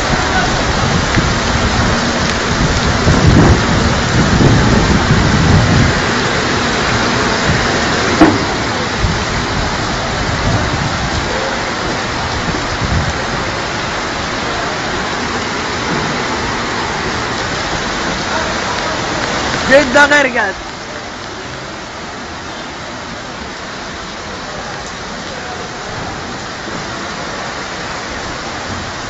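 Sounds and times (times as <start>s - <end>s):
low rumbling: 0.0s - 19.8s
heavy rain pouring: 0.0s - 29.0s.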